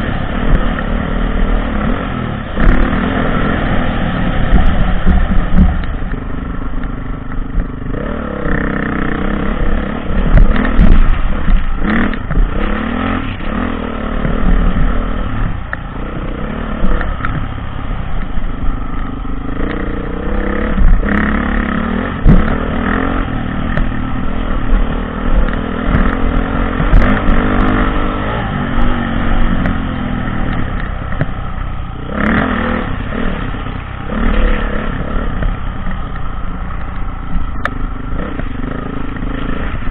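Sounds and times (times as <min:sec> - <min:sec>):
dirt bike engine revving: 0:00.0 - 0:39.9
bike knocking and clattering: 0:04.4 - 0:09.4, 0:10.1 - 0:13.6, 0:22.0 - 0:32.4.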